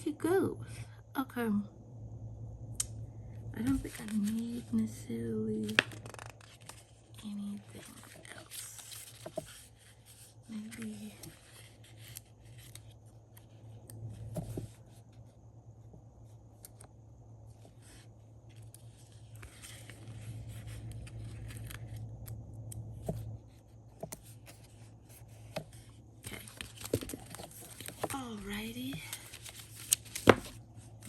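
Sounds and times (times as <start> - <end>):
steady low hum: 0.0 - 31.0
paper rustling: 3.6 - 4.8, 5.6 - 13.7, 17.7 - 22.0, 24.0 - 31.0.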